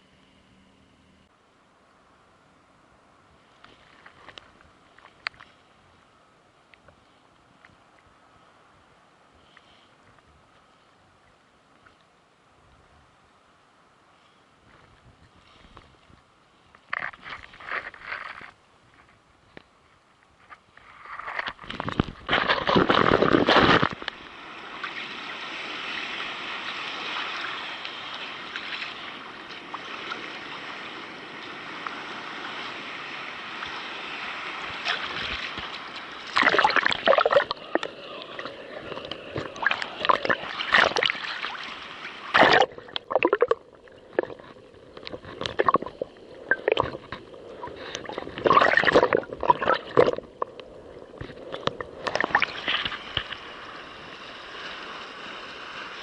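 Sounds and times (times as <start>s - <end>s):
waves splashing around kayak: 20.7s - 56.0s.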